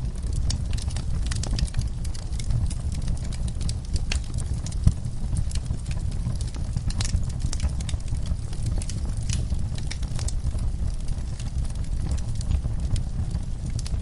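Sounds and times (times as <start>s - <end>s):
low rumble: 0.0s - 14.0s
wood fire crackling and popping: 0.0s - 14.0s.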